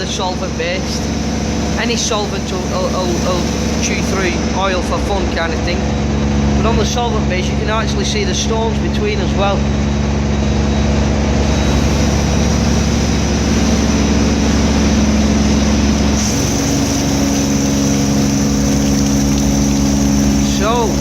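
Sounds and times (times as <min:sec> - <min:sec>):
pressure washer engine running: 0:00.0 - 0:21.0
pressure washer hiss: 0:02.2 - 0:04.4, 0:11.5 - 0:21.0.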